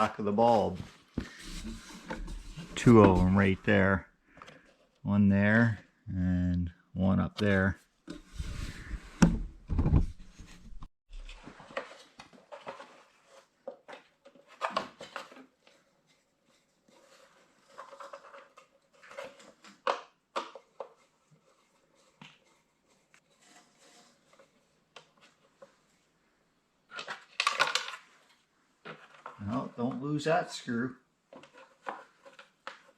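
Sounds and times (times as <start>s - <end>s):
plastic clatter: 26.9s - 29.4s.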